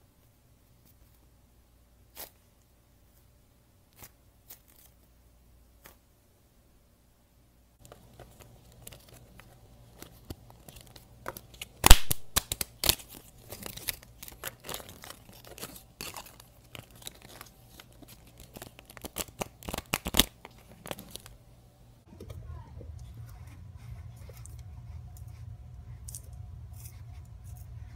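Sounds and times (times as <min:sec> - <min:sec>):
cards riffled by hand: 0:07.8 - 0:21.4.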